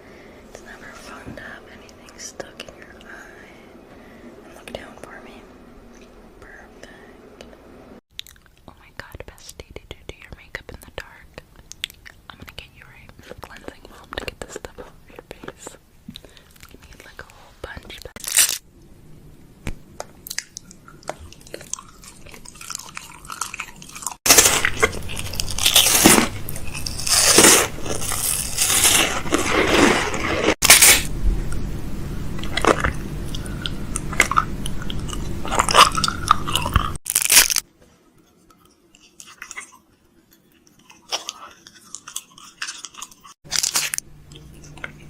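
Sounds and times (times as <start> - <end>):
close-miked crackling and crunching: 17.8 - 18.7, 20.0 - 31.6, 32.4 - 37.7, 38.5 - 45.0.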